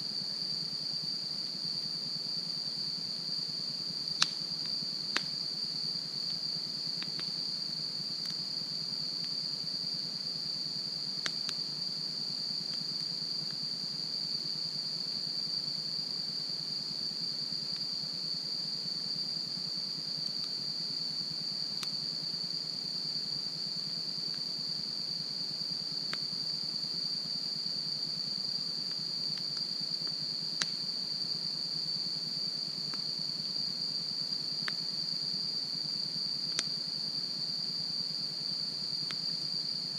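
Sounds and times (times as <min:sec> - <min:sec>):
high-pitched insect trill: 0:00.0 - 0:39.9
campfire crackling and popping: 0:04.2 - 0:04.4, 0:05.1 - 0:05.4.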